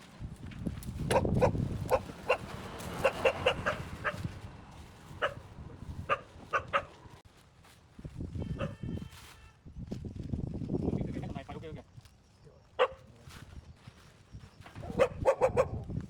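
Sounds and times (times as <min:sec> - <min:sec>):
dog barking: 0:01.1 - 0:04.3, 0:05.1 - 0:07.1, 0:08.6 - 0:08.8, 0:12.8 - 0:13.1, 0:14.8 - 0:15.9
steady low rumble: 0:03.4 - 0:07.2.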